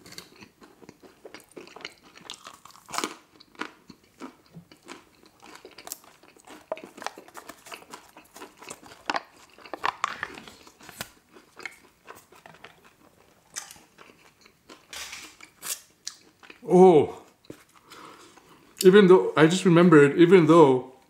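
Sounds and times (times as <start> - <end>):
chewing crispy chicken wings: 0.0 - 18.9
plastic lid crackling: 9.1 - 11.1.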